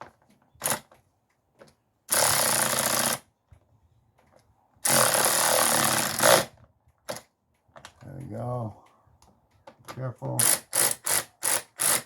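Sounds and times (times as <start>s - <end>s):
impact wrench bursts: 2.1s - 3.2s, 4.8s - 6.5s, 10.4s - 12.0s.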